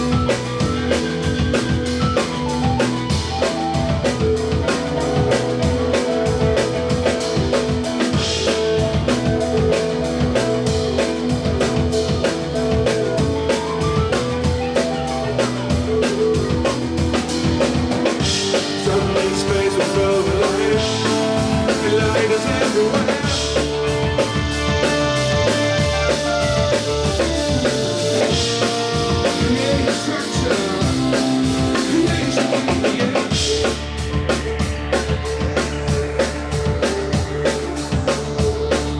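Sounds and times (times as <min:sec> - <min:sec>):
drum kit with bass drum: 0:00.0 - 0:38.9
live band playing instrumental: 0:00.0 - 0:38.9.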